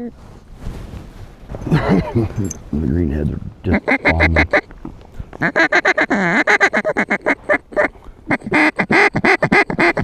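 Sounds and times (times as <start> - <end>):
duck calls quacking: 3.6 - 4.8, 5.4 - 10.0.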